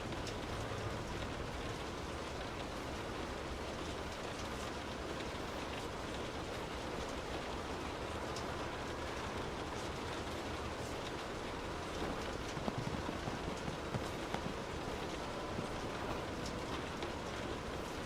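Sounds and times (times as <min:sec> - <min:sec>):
low steady rumble: 0:00.0 - 0:18.0
rain falling on a car: 0:00.0 - 0:18.0
drops ticking: 0:05.2 - 0:18.0.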